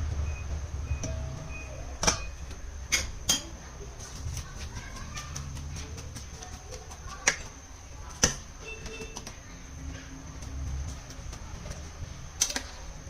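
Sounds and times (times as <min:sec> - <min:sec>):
low steady hum: 0:00.0 - 0:13.0
faint high chirp: 0:00.2 - 0:02.5.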